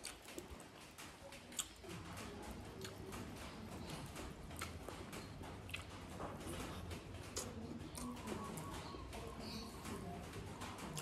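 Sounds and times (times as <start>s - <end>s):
mouth clicks and smacks: 0.0s - 1.9s, 2.8s - 8.2s
soft chewing: 0.0s - 11.0s.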